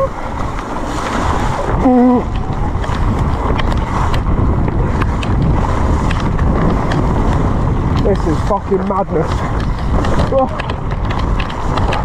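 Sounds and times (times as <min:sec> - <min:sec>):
heavy rain: 0:00.0 - 0:12.0
wind on microphone: 0:00.0 - 0:12.0.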